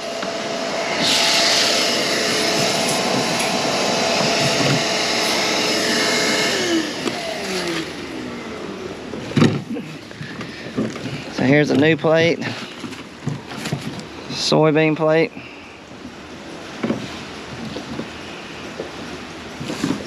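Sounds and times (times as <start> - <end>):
vacuum motor winding down: 0.0 - 10.1
vacuum running: 0.0 - 12.6.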